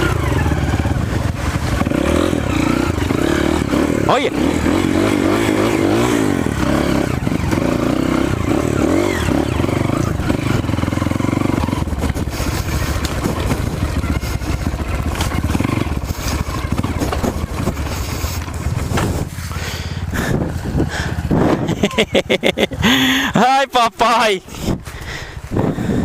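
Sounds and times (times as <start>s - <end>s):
motorcycle engine revving: 0.0s - 23.4s
knocks and rattles: 11.8s - 19.4s.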